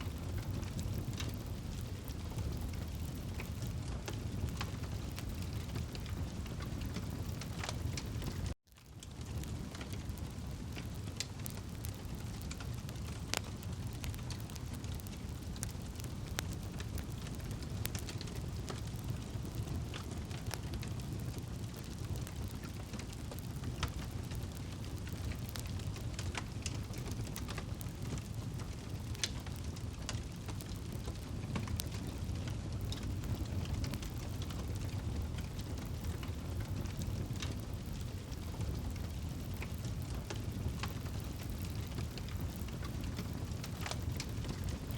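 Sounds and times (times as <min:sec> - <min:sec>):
campfire crackling: 0:00.0 - 0:44.9
sharp pops and snaps of fire: 0:00.0 - 0:44.9.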